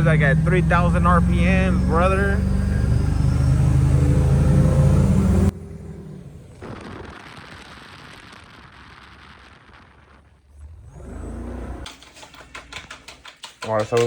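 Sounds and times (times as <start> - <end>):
truck engine idling: 0.0 - 7.4.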